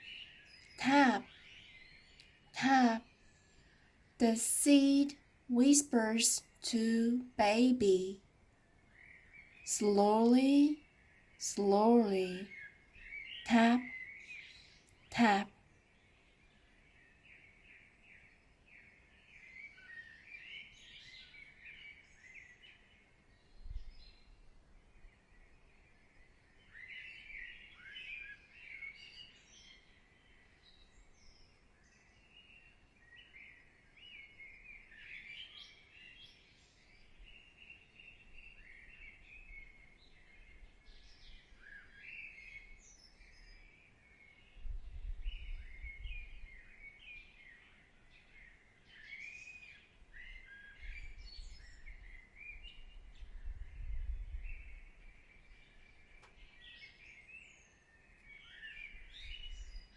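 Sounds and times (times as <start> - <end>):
small birds chirping and singing: 26.3 - 59.9.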